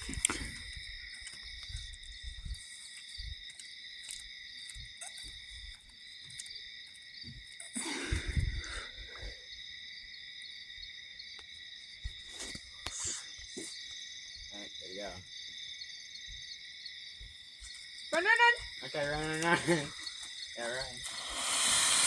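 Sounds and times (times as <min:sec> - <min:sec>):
crickets chirring: 0:00.0 - 0:22.0.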